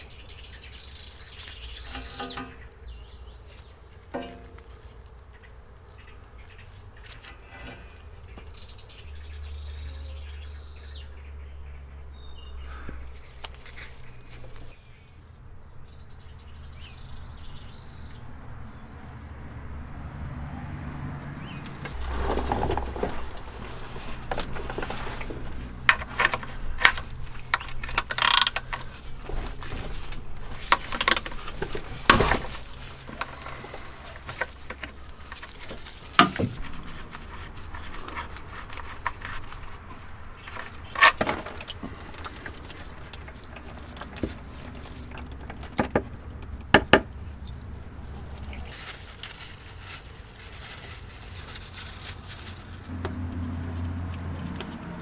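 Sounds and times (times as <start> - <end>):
birds chirping: 0.0 - 48.8
tools and parts clicking and clinking: 4.1 - 4.8, 21.7 - 47.1.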